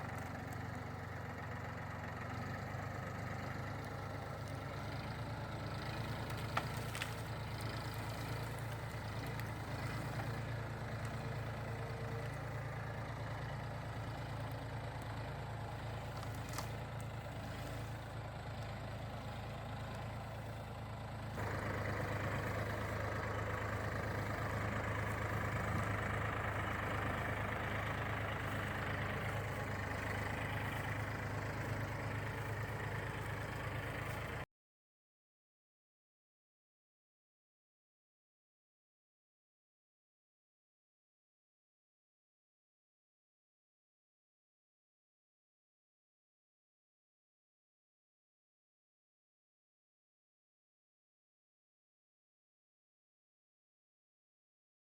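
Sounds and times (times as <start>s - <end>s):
tractor engine running: 0.0s - 34.5s.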